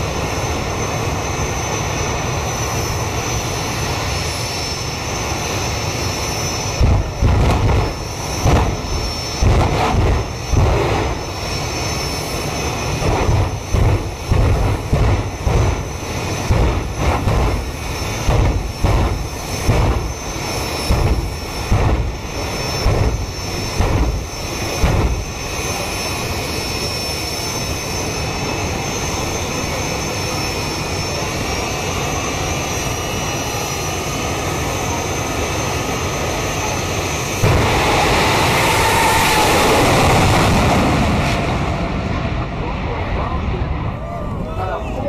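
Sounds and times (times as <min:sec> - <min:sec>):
turbine engines running: 0:00.0 - 0:45.0
low thumps: 0:13.1 - 0:20.2.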